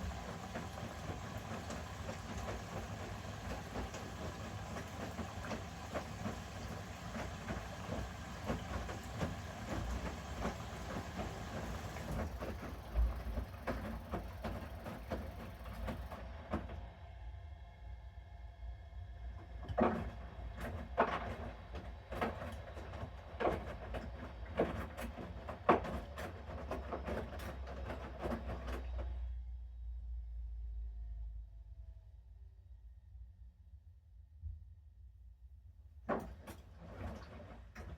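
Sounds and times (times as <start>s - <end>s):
laundry thudding in turning drum: 0.0s - 16.8s, 19.6s - 29.2s, 36.1s - 37.9s
washing machine hiss and rumble: 0.0s - 32.0s, 35.9s - 37.9s.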